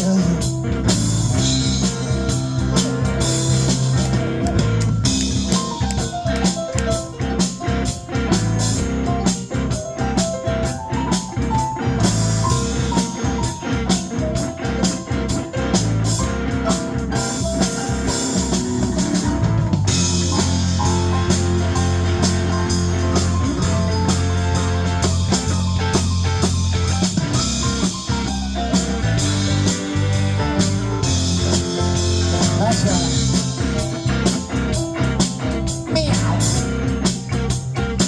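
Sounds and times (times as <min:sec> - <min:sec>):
bass guitar: 0:00.0 - 0:38.0
drum kit steady beat: 0:00.0 - 0:38.0
electric guitar lines: 0:00.0 - 0:38.0.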